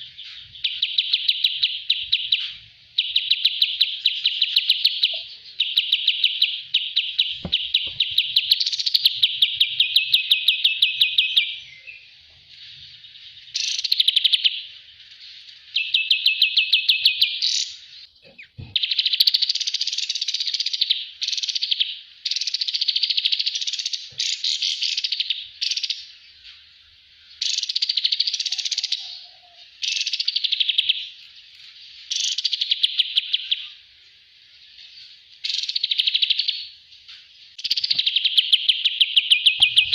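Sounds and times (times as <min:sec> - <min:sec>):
bulbul singing trilled phrases: 0:00.0 - 0:12.1, 0:37.6 - 0:39.9.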